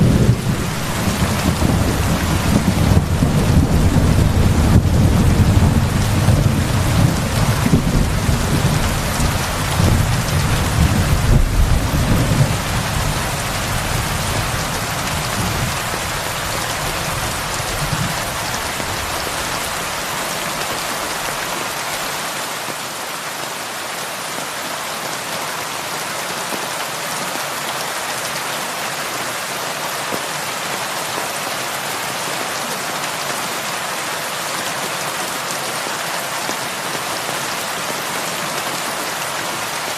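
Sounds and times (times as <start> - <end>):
deep roll of thunder: 0.0 - 16.2
heavy rain on a roof: 0.0 - 39.9.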